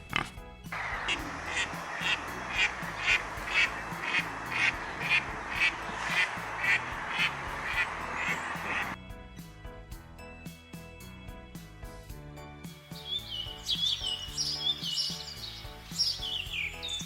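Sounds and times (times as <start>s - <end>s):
animal calling: 0.0s - 9.0s
quiet background music: 0.0s - 17.0s.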